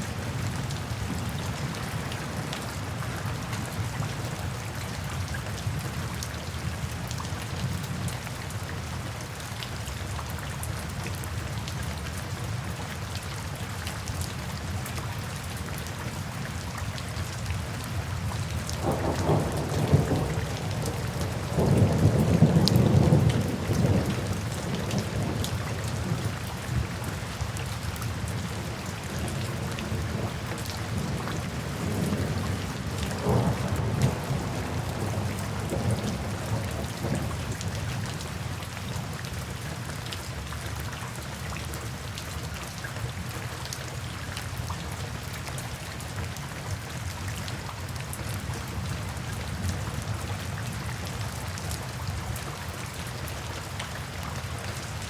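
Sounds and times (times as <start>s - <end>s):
steady rain falling: 0.0s - 55.0s
low thunder rumbling: 18.8s - 26.4s, 29.3s - 37.8s.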